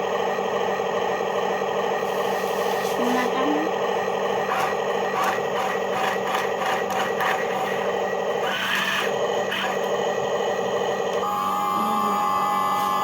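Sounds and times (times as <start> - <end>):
toy excavator motors whirring: 4.4 - 10.0.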